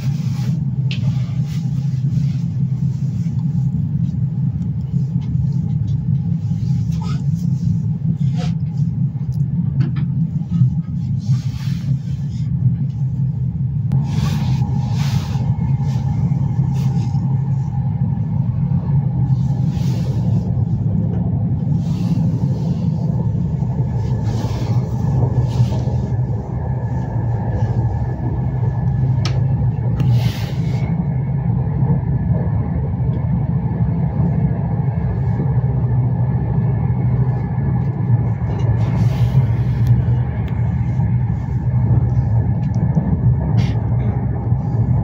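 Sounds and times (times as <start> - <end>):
train wheels rumbling on rails: 0.0 - 45.0.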